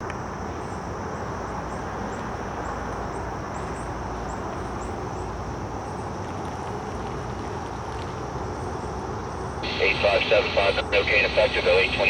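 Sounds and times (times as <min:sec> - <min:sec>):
steady high hiss: 0:09.6 - 0:12.0.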